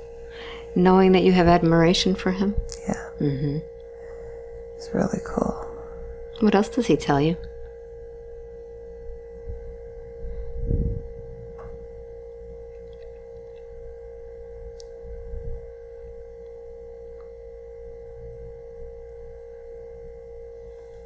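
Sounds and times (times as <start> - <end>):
steady pure tone drone: 0.0 - 21.0
low rumble: 9.4 - 16.2.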